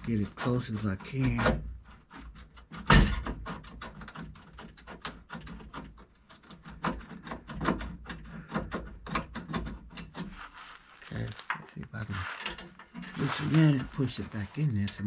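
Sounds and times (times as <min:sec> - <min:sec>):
metal knocks and taps: 0:00.0 - 0:10.4.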